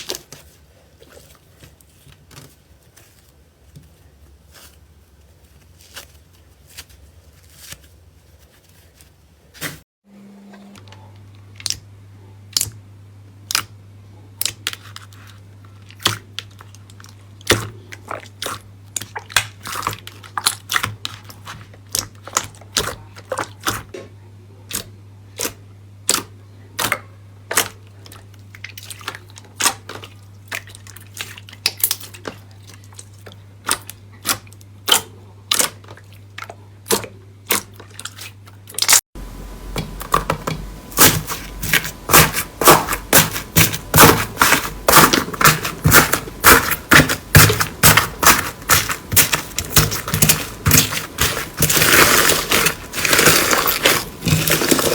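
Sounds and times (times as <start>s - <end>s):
slime popping and crackling: 39.7s - 54.9s.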